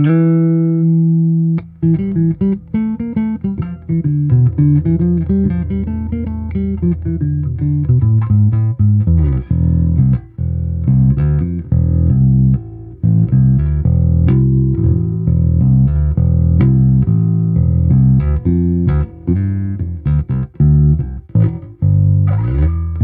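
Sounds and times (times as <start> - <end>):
electric bass guitar plucked notes: 0.0 - 23.0.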